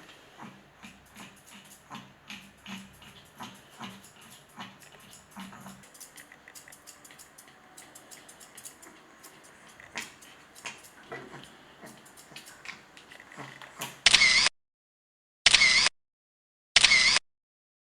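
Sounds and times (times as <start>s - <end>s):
dog breathing: 0.0s - 14.1s
grooming clicks and handling sounds: 0.0s - 14.5s.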